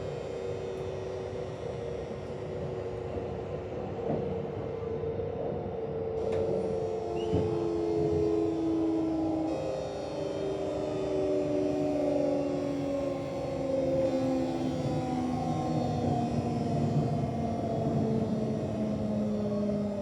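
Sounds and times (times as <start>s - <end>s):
low rumble of train: 0.0s - 20.0s
train inverter whining: 0.0s - 20.0s.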